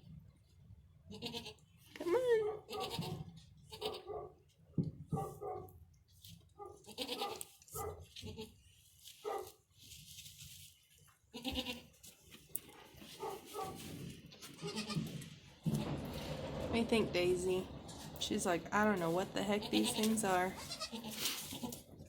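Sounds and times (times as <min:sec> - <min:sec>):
goats bleating: 0:01.1 - 0:01.6, 0:06.9 - 0:07.4, 0:11.4 - 0:11.9, 0:14.5 - 0:15.1, 0:19.6 - 0:21.8.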